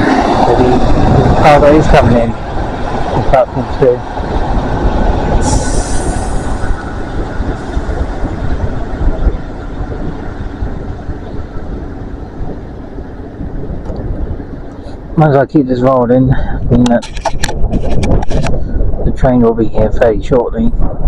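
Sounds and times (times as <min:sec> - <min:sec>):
train wheels rumbling on rails: 0:00.0 - 0:15.8
high hiss burst: 0:05.4 - 0:06.8.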